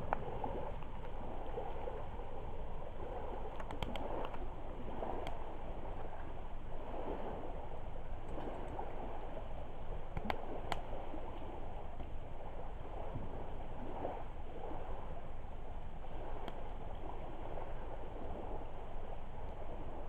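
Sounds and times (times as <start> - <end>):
campfire burning: 3.5 - 4.4.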